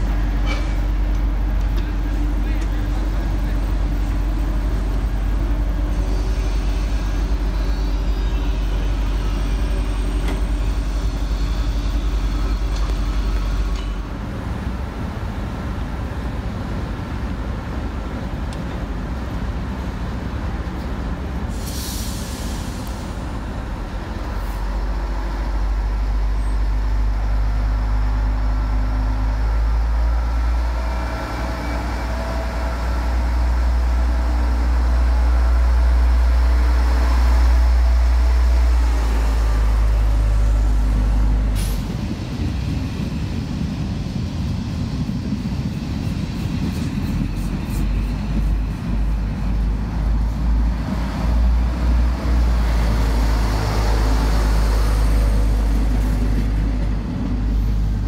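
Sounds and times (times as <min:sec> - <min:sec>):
train rumbling: 0:00.0 - 0:58.0
air brake hiss: 0:21.5 - 0:23.3, 0:41.5 - 0:42.0.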